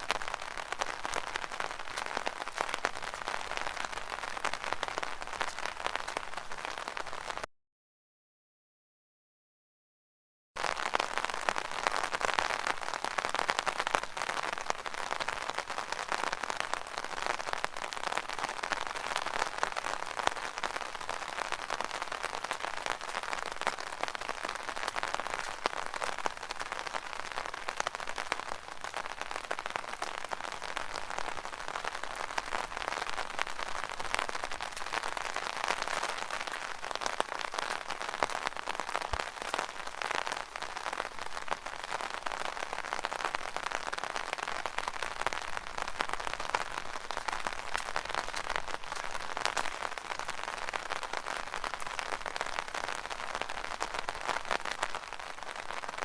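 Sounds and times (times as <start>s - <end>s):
rain on an umbrella: 0.0s - 7.5s, 10.6s - 56.0s.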